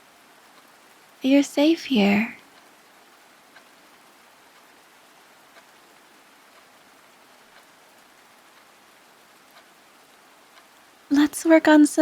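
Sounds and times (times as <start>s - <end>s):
faint rain hiss: 0.0s - 12.0s
drip-like ticks: 2.4s - 2.8s, 3.4s - 11.0s.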